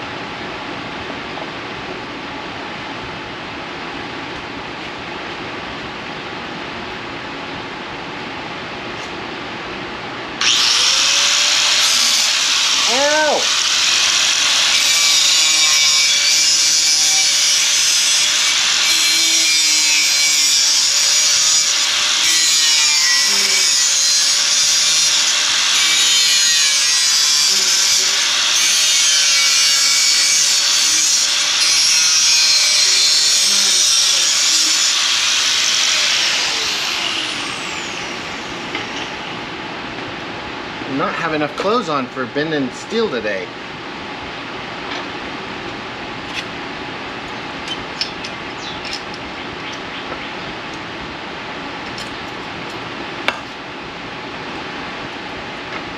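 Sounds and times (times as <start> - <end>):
motor whine: 10.4 - 19.4, 26.8 - 39.5
power tool cutting steel: 10.4 - 39.4.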